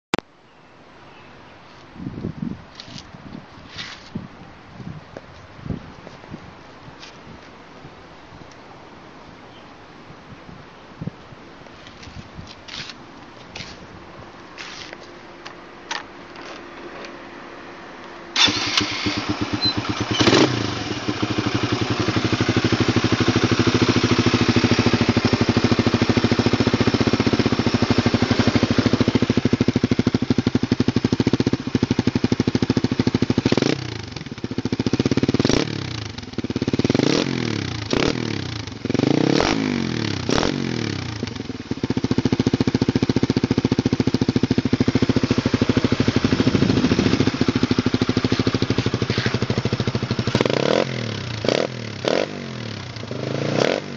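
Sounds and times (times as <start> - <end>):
motorcycle engine idling and revving: 14.6 - 53.9.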